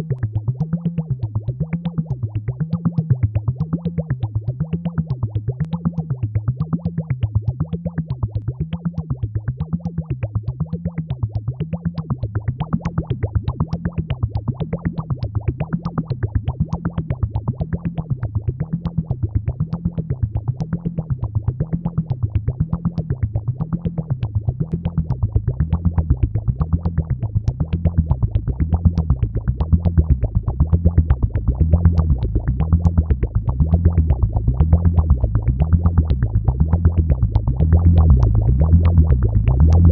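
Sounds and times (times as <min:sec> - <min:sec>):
wobbling low synth tone: 0:00.0 - 0:39.9
synthesizer pulsing notes: 0:24.8 - 0:39.9.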